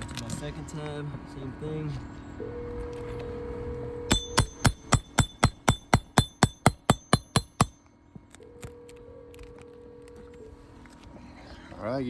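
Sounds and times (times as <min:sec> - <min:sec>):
hammer tapping on shingle: 0:04.1 - 0:07.8.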